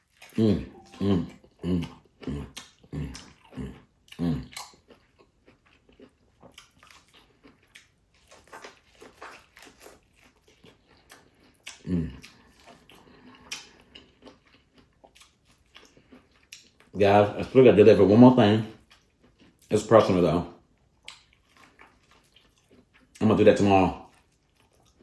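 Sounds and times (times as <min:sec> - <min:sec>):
person chewing with crunching: 0:00.0 - 0:25.0
short low falling vocal sounds: 0:00.4 - 0:04.5.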